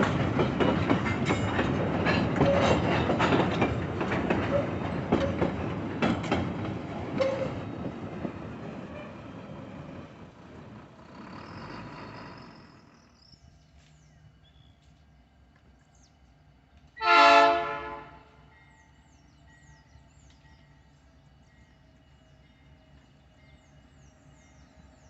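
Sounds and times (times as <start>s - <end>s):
railcars rolling: 0.0s - 25.0s
faint birds chirping: 8.6s - 16.8s, 18.4s - 25.0s
locomotive horn blast: 17.0s - 18.5s.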